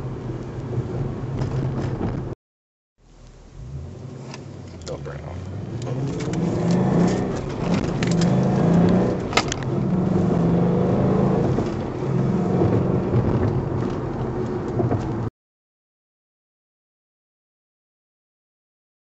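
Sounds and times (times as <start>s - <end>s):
car engine revving: 3.2s - 15.3s.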